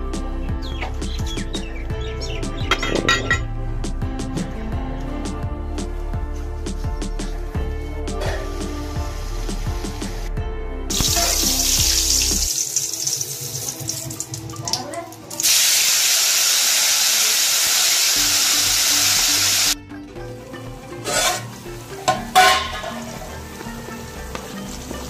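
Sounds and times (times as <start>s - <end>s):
background music: 0.0s - 25.0s
bay leaves sizzling in a pan: 10.9s - 14.3s, 15.4s - 19.8s, 20.8s - 25.0s
metal spoon scraping a pan: 21.0s - 23.4s.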